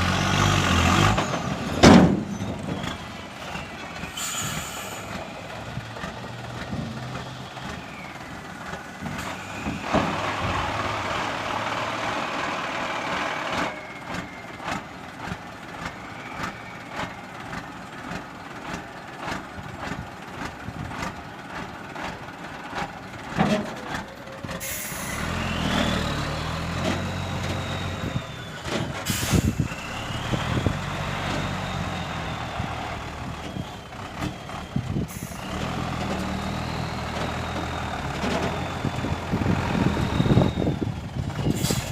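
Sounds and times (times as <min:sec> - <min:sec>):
diesel truck engine working: 0:00.0 - 0:41.9
air brake hisses: 0:04.1 - 0:05.2, 0:24.6 - 0:25.2, 0:29.0 - 0:29.7, 0:41.5 - 0:41.9.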